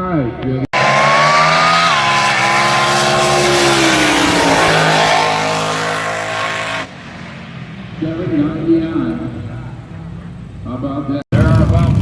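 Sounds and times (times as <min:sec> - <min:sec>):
dragster engine at full throttle: 0:00.8 - 0:09.9.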